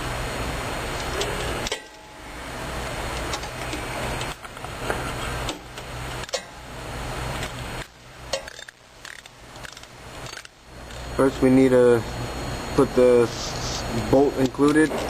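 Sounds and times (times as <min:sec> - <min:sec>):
background hum and hiss: 0:00.0 - 0:15.0
metal tool clicks and clinks: 0:08.3 - 0:10.5.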